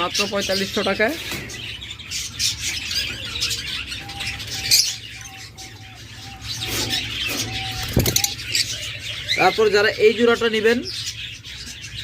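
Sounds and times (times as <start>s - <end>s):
caged birds chirping: 0.0s - 12.0s.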